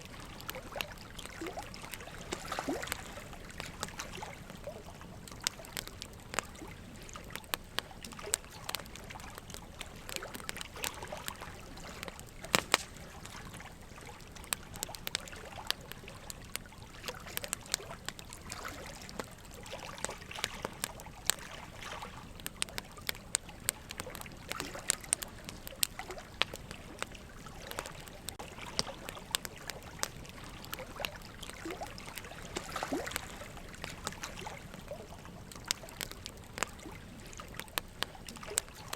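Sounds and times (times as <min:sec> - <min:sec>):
campfire crackling: 0:00.0 - 0:38.9
fire popping: 0:00.0 - 0:38.9.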